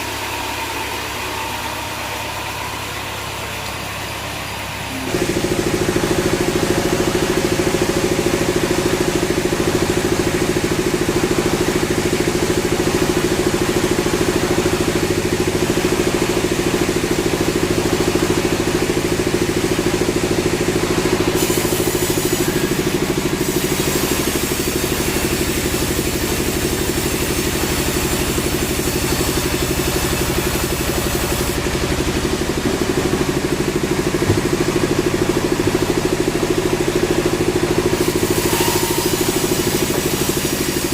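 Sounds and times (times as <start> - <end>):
sawmill machinery droning: 0.0 - 40.9.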